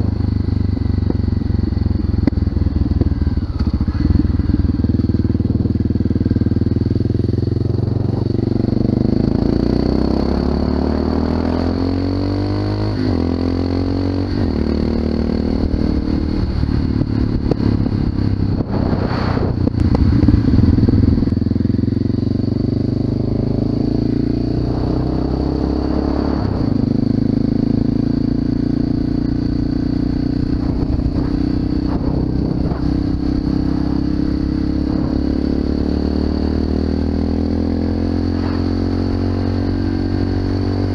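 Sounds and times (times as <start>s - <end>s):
motorcycle engine accelerating: 0.0s - 40.9s
rushing noise: 18.4s - 21.3s, 30.3s - 37.0s.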